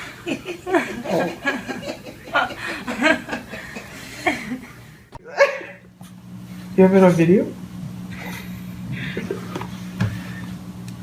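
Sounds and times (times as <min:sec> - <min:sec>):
person chuckling: 0:00.0 - 0:05.9, 0:08.1 - 0:09.6.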